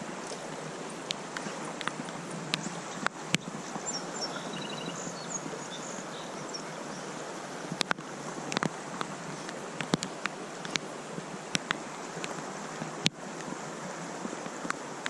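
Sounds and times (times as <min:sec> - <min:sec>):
creek water rushing: 0:00.0 - 0:15.0
wind: 0:00.0 - 0:15.0
faint bird trill: 0:03.8 - 0:06.8.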